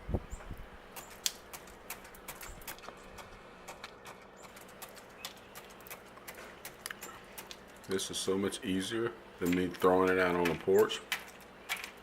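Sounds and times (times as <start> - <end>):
turkey pecking on plastic: 1.0 - 8.0, 9.6 - 12.0.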